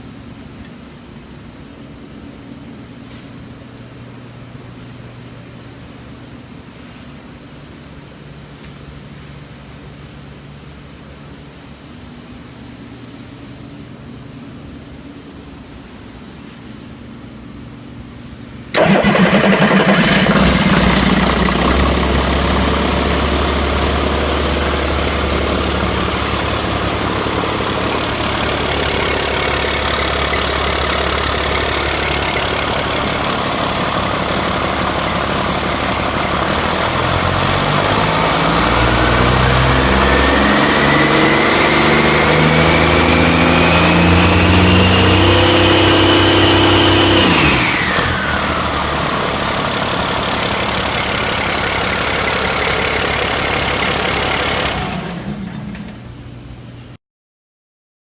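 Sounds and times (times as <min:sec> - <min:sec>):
diesel engine revving: 0:18.7 - 0:56.1
engine whine: 0:18.7 - 0:56.8.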